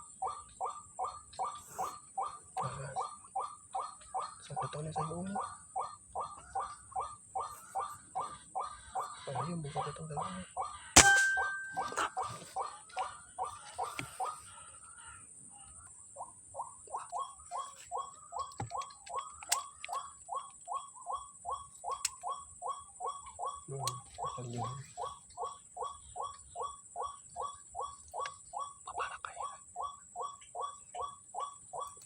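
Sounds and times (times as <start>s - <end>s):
bird repeated call notes: 0.0s - 32.0s
waterhen calling: 6.2s - 15.8s.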